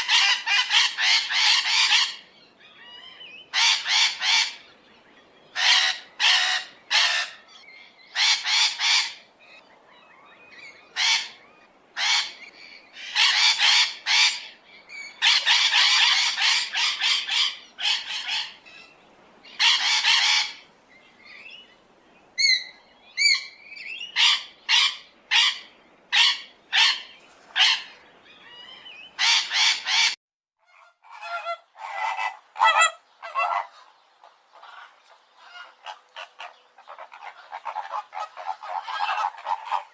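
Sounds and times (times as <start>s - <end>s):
birds squawking and honking: 0.0s - 20.7s, 22.4s - 39.9s
background hiss: 0.0s - 30.1s.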